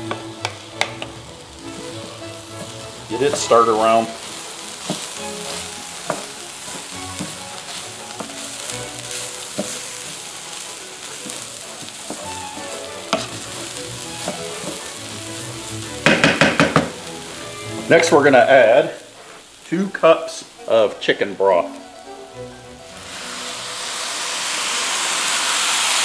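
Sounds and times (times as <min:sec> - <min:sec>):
utensil clicking against pan: 0:00.0 - 0:01.2
food sizzling in a skillet: 0:00.0 - 0:26.0.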